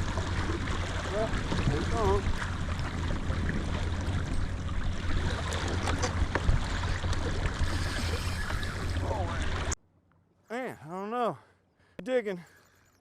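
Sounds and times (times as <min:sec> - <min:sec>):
water washing: 0:00.0 - 0:09.8.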